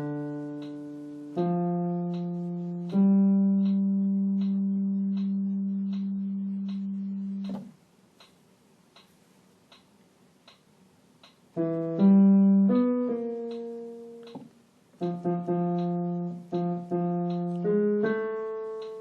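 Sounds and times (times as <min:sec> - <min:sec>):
piano bass notes: 0:00.0 - 0:07.8, 0:11.6 - 0:19.0
soft ticking click: 0:02.0 - 0:11.5, 0:13.4 - 0:19.0.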